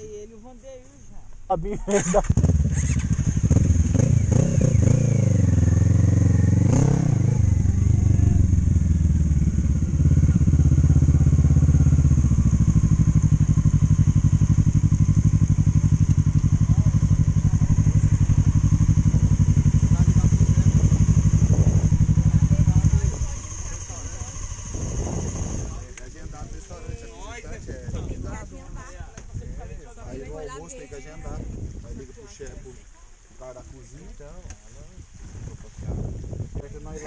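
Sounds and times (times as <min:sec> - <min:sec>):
motorcycle engine running: 0:01.9 - 0:26.6.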